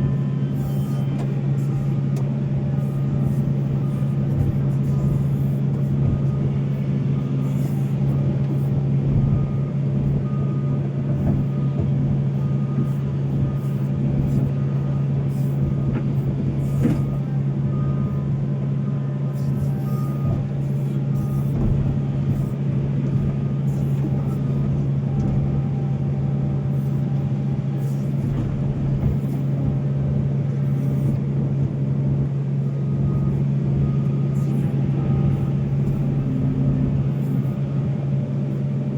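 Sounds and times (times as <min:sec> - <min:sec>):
faint beep: 0:00.0 - 0:02.0, 0:16.6 - 0:18.3, 0:19.3 - 0:21.6
excavator diesel engine running: 0:00.0 - 0:38.9.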